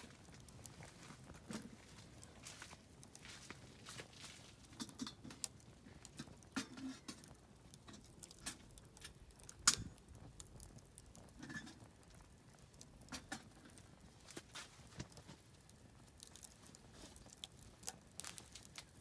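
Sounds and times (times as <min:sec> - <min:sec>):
campfire crackling: 0:00.0 - 0:19.0.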